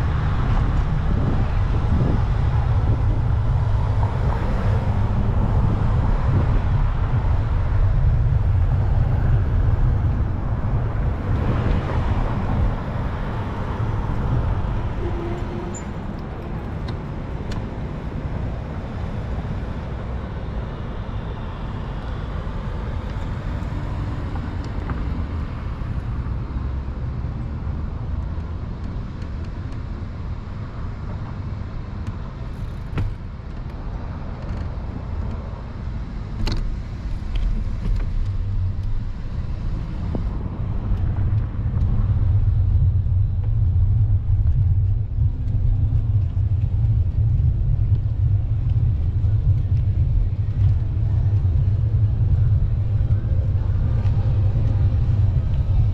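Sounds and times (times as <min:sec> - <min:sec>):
wind and road noise on microphone: 0:00.0 - 0:55.9.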